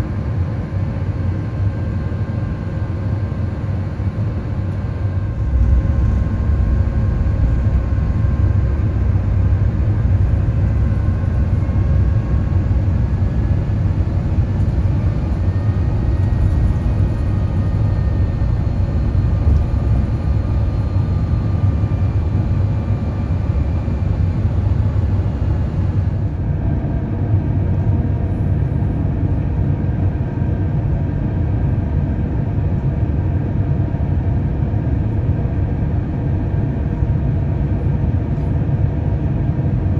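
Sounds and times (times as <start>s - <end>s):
aircraft engine and airflow rumble: 0.0s - 39.9s
faint engine whine: 0.0s - 39.9s.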